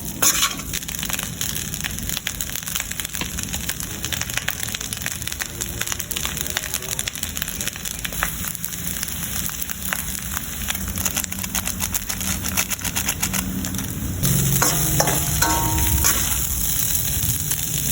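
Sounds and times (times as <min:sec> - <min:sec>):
rice sizzling in a frying pan: 0:00.0 - 0:17.9
spatula scraping a pan: 0:00.2 - 0:00.7.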